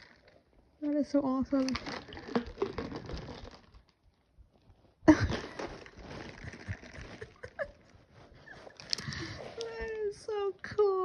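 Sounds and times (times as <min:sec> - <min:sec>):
ice cubes rattling in plastic bottle: 0:00.0 - 0:04.0, 0:05.1 - 0:07.6.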